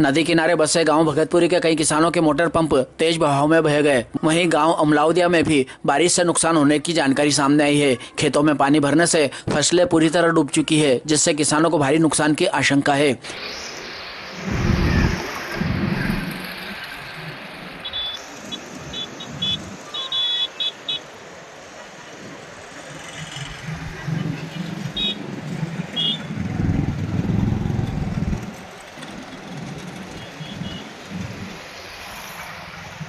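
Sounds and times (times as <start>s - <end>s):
road vehicles passing: 13.2s - 33.0s.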